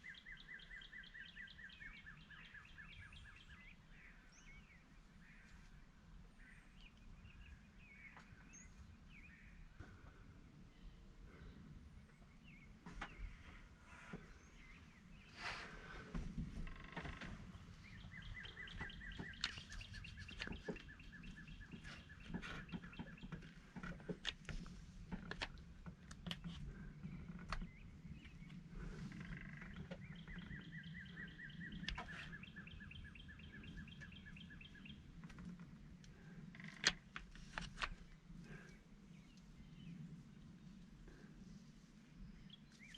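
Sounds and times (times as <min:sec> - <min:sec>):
songbird trilling: 0:17.8 - 0:23.4, 0:27.6 - 0:35.1.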